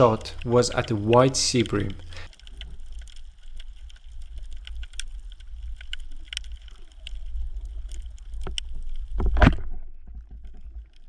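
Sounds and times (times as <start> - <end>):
sharp underwater clicks and crackles: 0.0 - 11.0.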